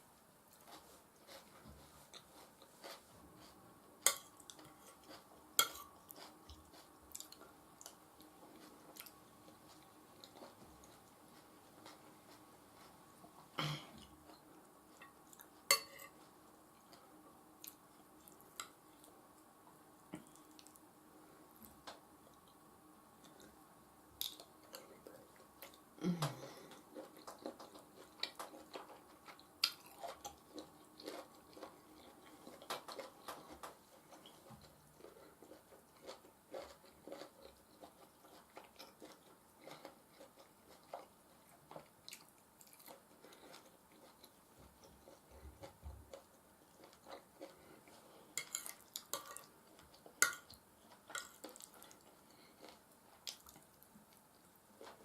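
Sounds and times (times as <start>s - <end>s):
chewing and mouth noises: 0.5s - 13.1s, 20.1s - 20.9s, 24.2s - 55.0s
cutlery clicking on a plate: 15.7s - 16.1s.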